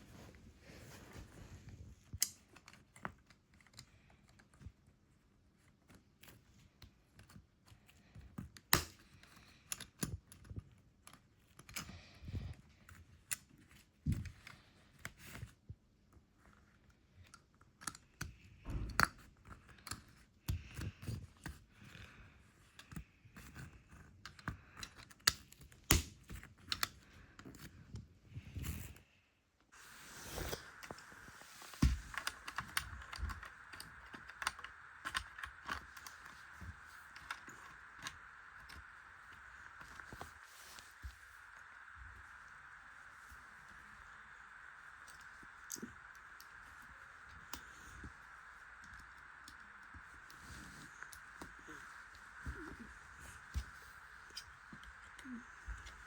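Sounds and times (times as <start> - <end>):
steady hiss: 29.7 - 56.0
plastic bricks clicking: 31.9 - 38.8.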